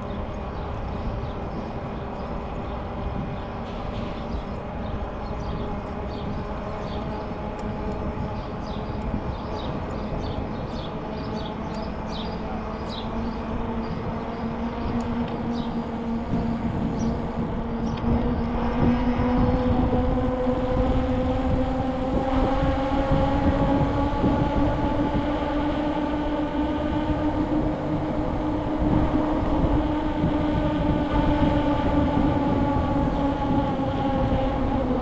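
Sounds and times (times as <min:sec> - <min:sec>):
droning hum: 0:00.0 - 0:35.0
rough low rumbling: 0:00.0 - 0:35.0
bird chirping: 0:15.4 - 0:17.4.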